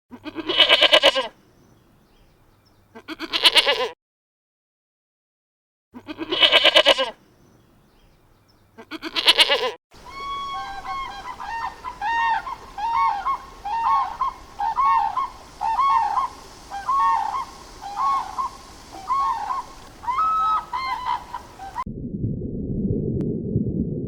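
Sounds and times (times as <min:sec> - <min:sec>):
bird calling: 0:10.0 - 0:21.8.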